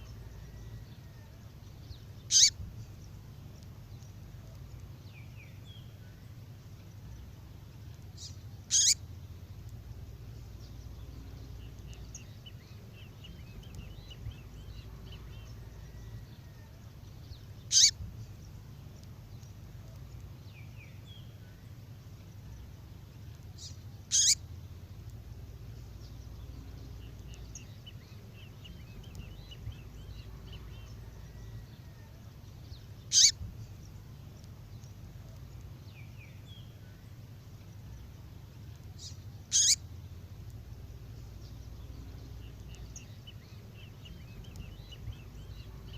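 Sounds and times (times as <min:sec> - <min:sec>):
soft bird twittering: 0:00.0 - 0:45.9
short high bird calls: 0:02.3 - 0:02.6, 0:08.2 - 0:09.0, 0:17.7 - 0:18.0, 0:24.1 - 0:24.4, 0:33.1 - 0:33.5, 0:39.0 - 0:39.8.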